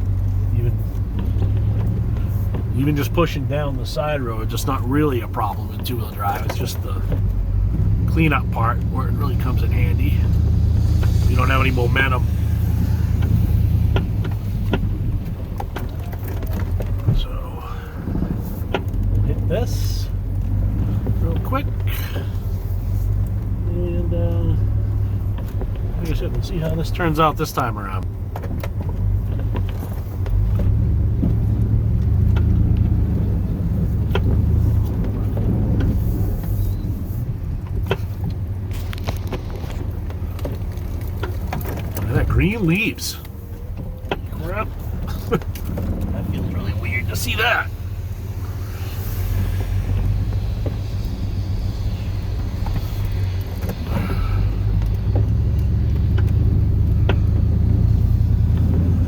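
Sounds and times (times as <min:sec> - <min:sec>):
truck engine rumble under load: 0:00.0 - 0:59.0
light clicks and knocks: 0:37.6 - 0:46.4.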